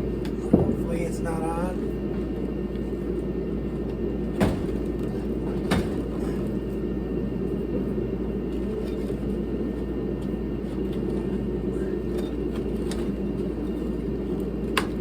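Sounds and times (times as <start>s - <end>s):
space heater humming: 0.0s - 15.0s
sharp knocks: 4.4s - 4.9s.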